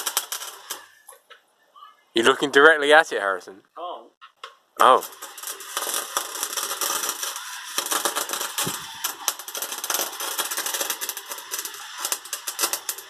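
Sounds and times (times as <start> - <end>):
welding arc crackling and spitting: 0.0 - 1.1, 4.8 - 13.0.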